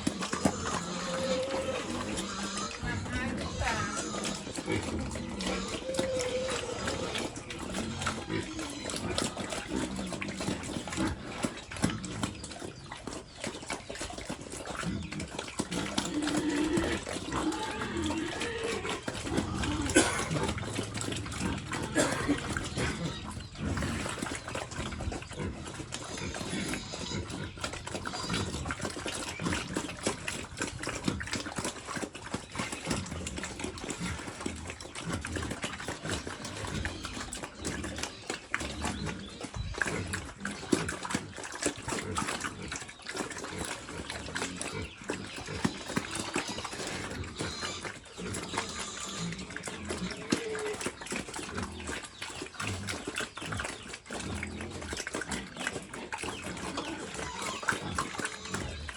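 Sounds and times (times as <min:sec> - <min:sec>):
pigs chewing and slurping: 0:00.0 - 0:58.9.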